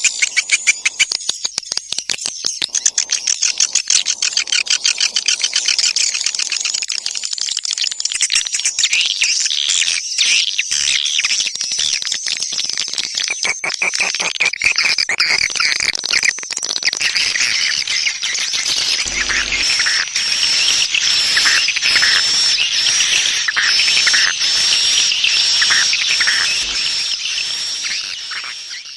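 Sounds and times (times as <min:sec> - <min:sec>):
swiftlets twittering: 0:16.8 - 0:28.9.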